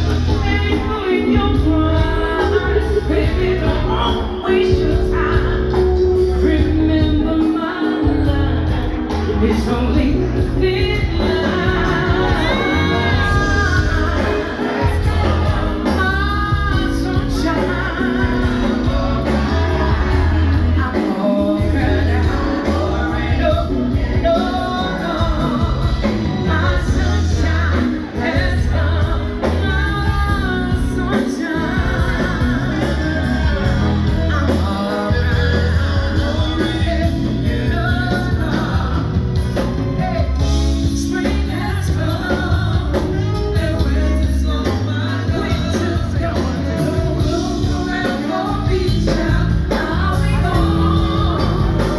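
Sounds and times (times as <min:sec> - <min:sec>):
band playing bass drums keyboards: 0:00.0 - 0:51.9
woman singing soul ballad: 0:00.0 - 0:51.9.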